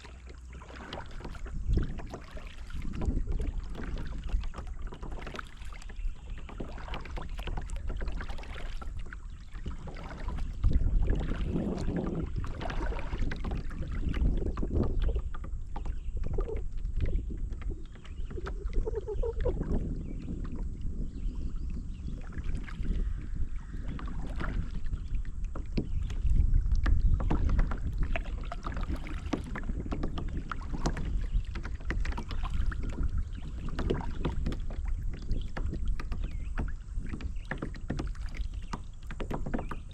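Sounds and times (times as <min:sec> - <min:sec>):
paddle splashing water: 0:00.0 - 0:39.9
wind on microphone: 0:00.0 - 0:39.9.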